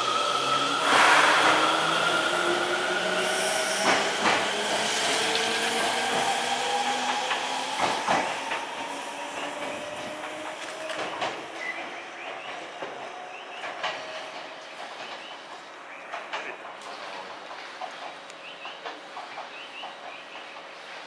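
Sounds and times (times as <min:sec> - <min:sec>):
wheel clacks over rail joints: 0:07.0 - 0:21.0.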